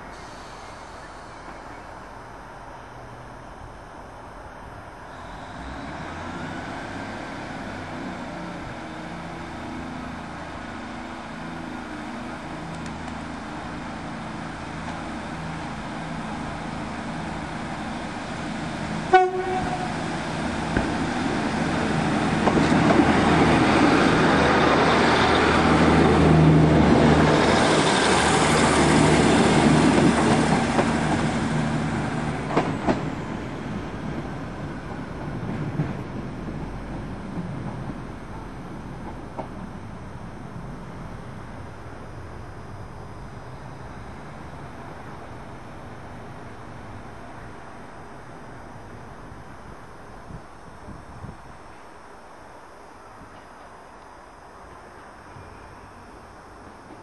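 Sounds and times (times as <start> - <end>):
diesel train running: 0.0 - 57.0
train horn toot: 19.1 - 20.0.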